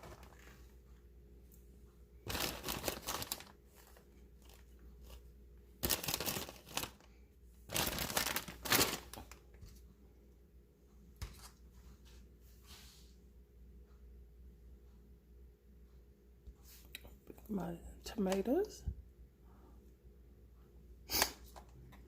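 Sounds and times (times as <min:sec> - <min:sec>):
lettuce rustling and crunching: 0:00.0 - 0:00.7, 0:02.2 - 0:09.8.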